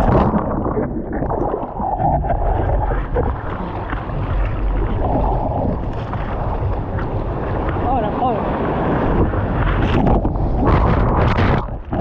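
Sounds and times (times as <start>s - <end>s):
water and wind over microphone: 0.0s - 12.0s.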